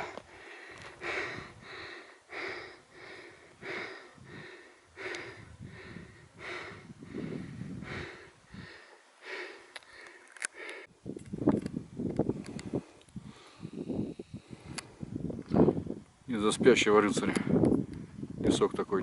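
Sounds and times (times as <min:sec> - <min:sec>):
person breathing hard: 0:00.0 - 0:11.0, 0:12.3 - 0:15.1.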